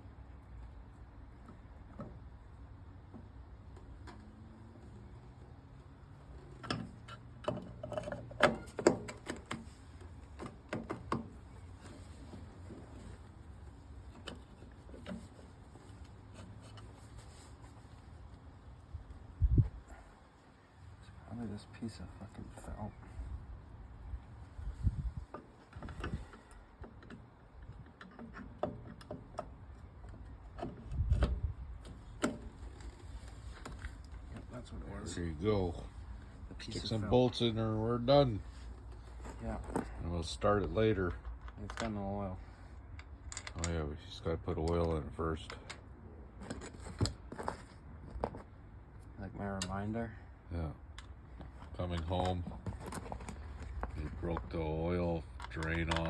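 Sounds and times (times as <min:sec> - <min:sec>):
metal parts clicking and knocking: 0:55.2 - 0:56.0.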